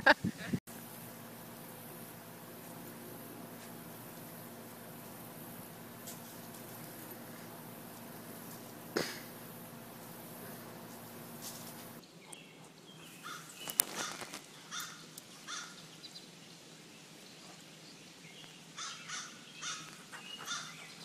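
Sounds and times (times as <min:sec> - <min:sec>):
bird calling: 0:11.7 - 0:15.8, 0:18.8 - 0:21.0.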